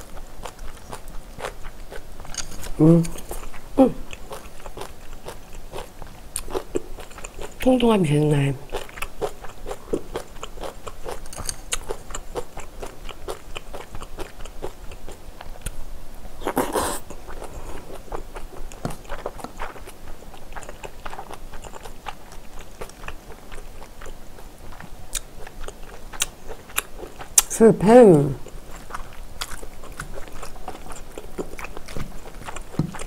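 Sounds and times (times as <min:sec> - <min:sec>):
wet chewing and biting smacks: 0:16.4 - 0:27.5, 0:28.4 - 0:33.0.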